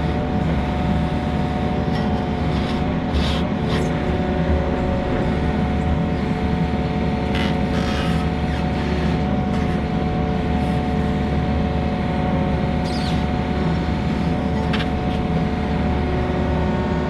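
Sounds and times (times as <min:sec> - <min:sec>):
skid steer engine running: 0:00.0 - 0:17.0.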